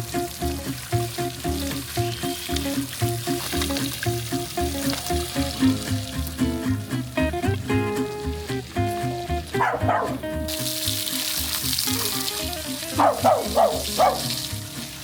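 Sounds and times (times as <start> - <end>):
background music with beat: 0.0 - 13.1
dog barking and yipping: 9.5 - 10.5, 12.8 - 14.6.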